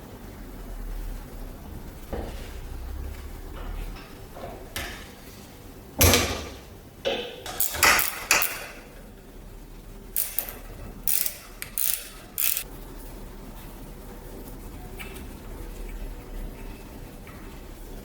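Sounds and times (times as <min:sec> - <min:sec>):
metal parts clanking: 0:10.2 - 0:12.6.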